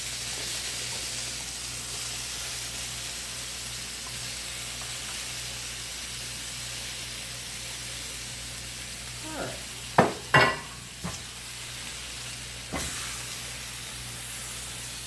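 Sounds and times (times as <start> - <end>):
meatballs sizzling in a pan: 0.0 - 15.0.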